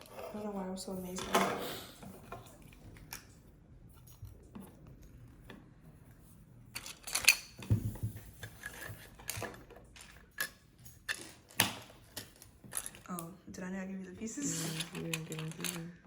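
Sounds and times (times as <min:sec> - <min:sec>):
plastic pieces clicking and rattling: 0:06.7 - 0:07.6, 0:08.4 - 0:13.3, 0:14.4 - 0:16.0.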